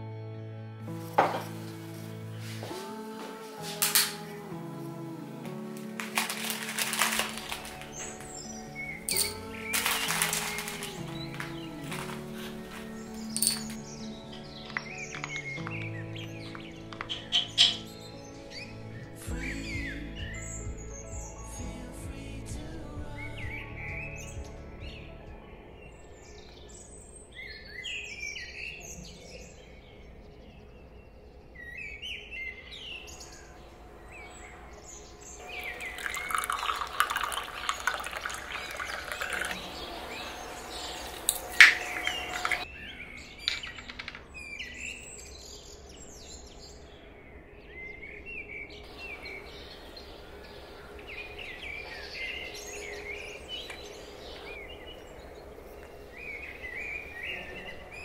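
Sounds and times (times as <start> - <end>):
handling noise: 1.0 - 4.3, 5.7 - 17.9
small birds chirping: 5.4 - 58.0.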